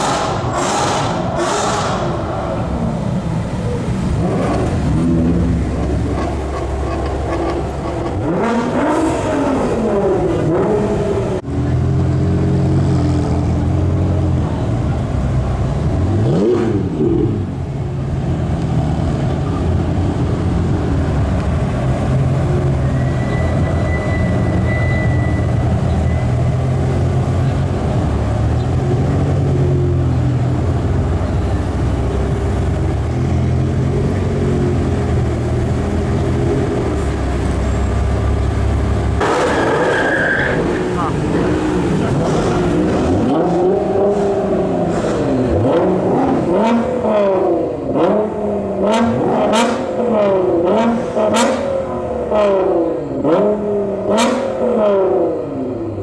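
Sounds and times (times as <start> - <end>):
engine rev-ups: 0.0 - 14.1, 30.6 - 55.2
sports car engines rumbling: 0.0 - 56.0.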